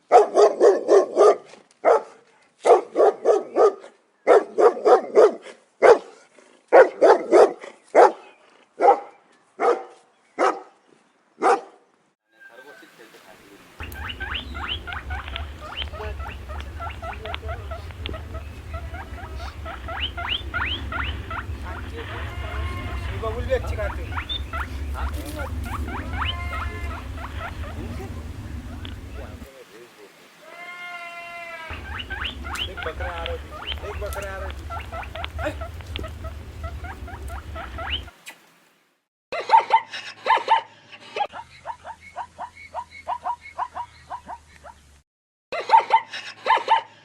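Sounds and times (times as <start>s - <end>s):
small animal squeaking: 13.8s - 29.4s, 31.7s - 38.4s
animal squealing calls: 13.8s - 29.5s, 30.4s - 38.3s
low hum: 13.8s - 29.5s, 31.7s - 38.1s.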